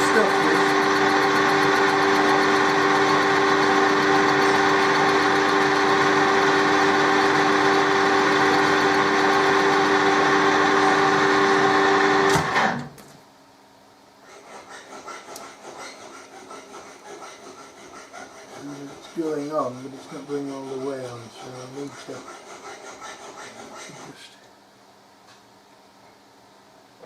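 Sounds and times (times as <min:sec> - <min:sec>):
metal lathe humming and whining: 0:00.0 - 0:12.7.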